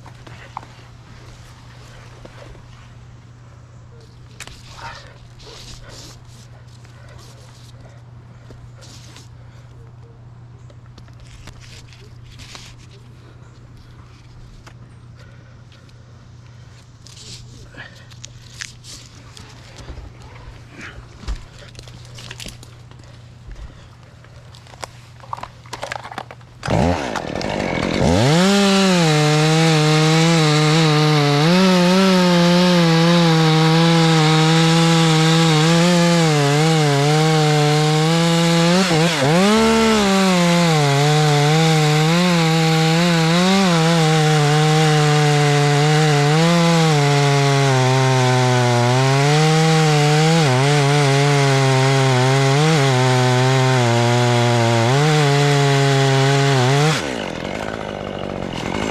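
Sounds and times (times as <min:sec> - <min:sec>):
chainsaw running: 0:25.3 - 0:58.9.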